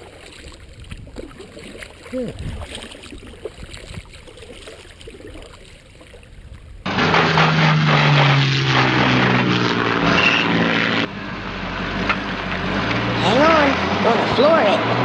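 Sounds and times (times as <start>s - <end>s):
loud steady motor drone: 6.9s - 15.0s.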